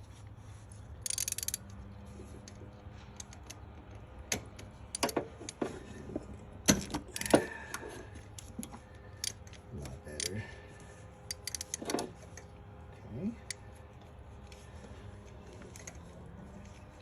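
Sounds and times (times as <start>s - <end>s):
low hum: 0.0s - 17.0s
socket wrench clicking on metal: 1.0s - 1.8s, 6.7s - 7.4s, 9.2s - 9.6s, 11.3s - 12.5s.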